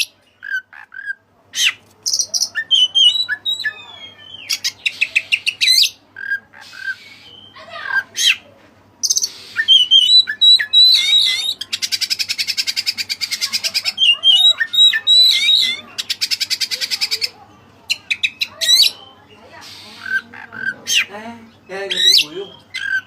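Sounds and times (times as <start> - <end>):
bird whistled song: 1.6 - 8.4, 9.0 - 17.3, 21.9 - 23.0.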